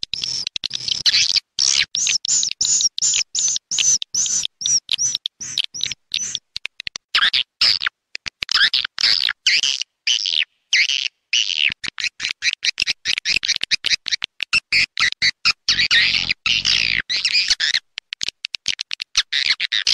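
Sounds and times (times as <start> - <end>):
swiftlet chirps and twitters: 0.2 - 6.4.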